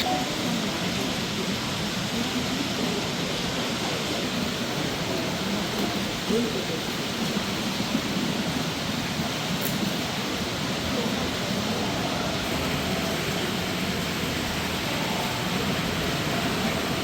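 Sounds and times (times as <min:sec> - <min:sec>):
constant hiss: 0:00.0 - 0:17.0.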